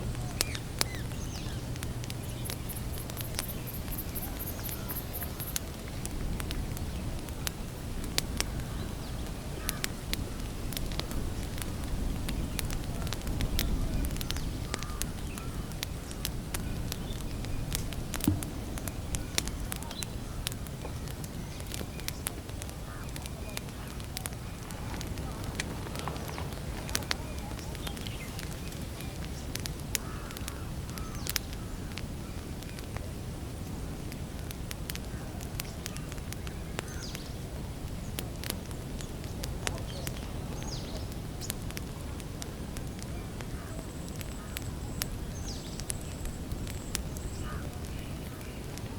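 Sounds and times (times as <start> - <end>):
low steady rumble: 0.0 - 15.4, 16.0 - 21.6
campfire crackling and popping: 0.0 - 48.9
heavy low thump: 18.2 - 19.2.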